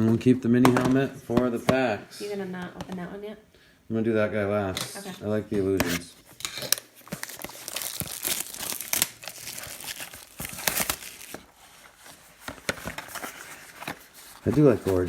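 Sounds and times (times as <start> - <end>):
plastic wrapper crinkling and tearing: 5.8 - 15.0.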